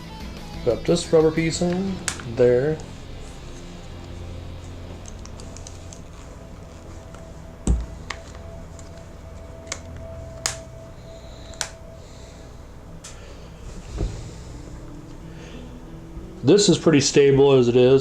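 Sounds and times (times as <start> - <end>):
thump: 13.9 - 14.2.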